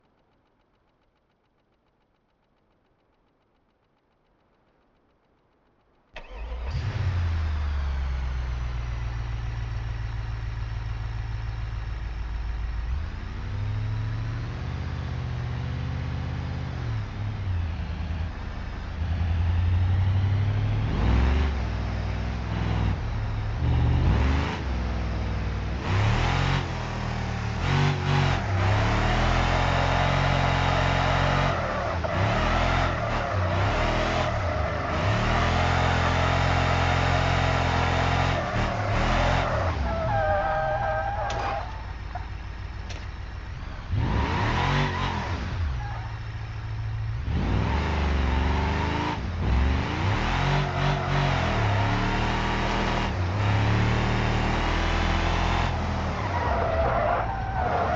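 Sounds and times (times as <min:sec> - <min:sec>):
truck engine revving: 0:13.4 - 0:42.2, 0:43.7 - 0:57.9.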